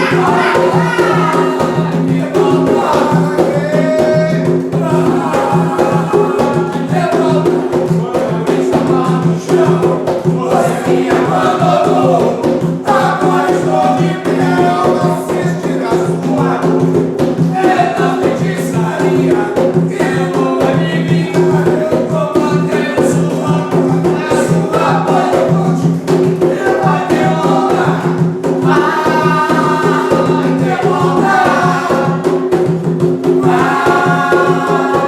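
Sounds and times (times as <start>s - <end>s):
group of voices chanting: 0.0s - 7.6s, 8.5s - 16.5s, 26.4s - 32.4s, 33.4s - 35.0s
fast percussion: 0.0s - 35.0s.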